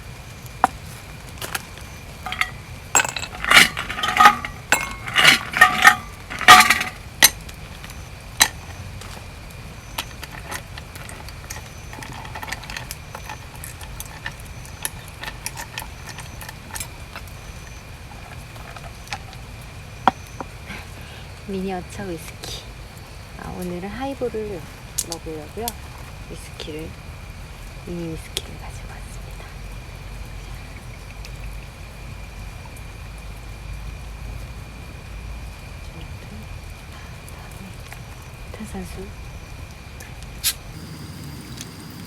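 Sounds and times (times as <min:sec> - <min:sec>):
glassware clinking: 0:02.2 - 0:07.0.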